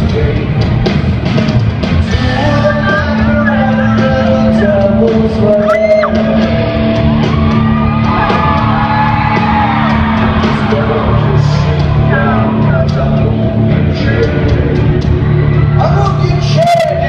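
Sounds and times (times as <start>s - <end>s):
rock music with singing: 0.0s - 17.0s
people whooping and shouting: 5.5s - 12.9s, 15.1s - 17.0s.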